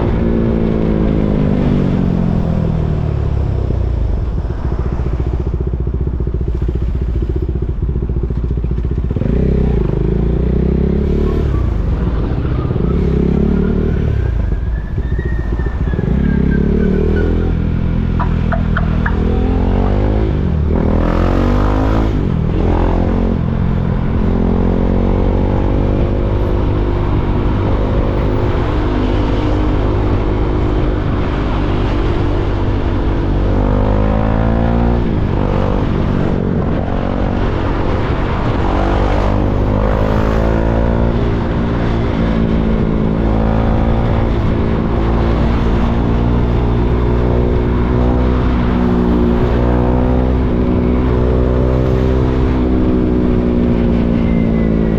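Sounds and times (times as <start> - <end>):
motorcycle engine running: 1.6 - 10.9, 17.6 - 24.6.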